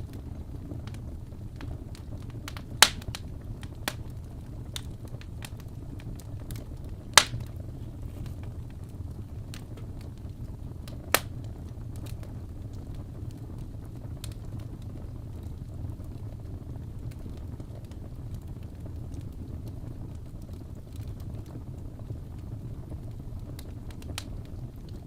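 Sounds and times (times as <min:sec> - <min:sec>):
wood fire crackling: 0:00.0 - 0:25.0
loud sharp pops: 0:02.8 - 0:03.2, 0:07.2 - 0:07.5.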